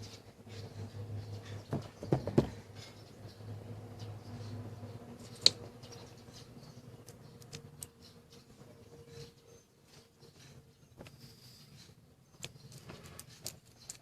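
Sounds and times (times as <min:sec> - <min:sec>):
small parts clicking and scraping: 0:07.0 - 0:14.0.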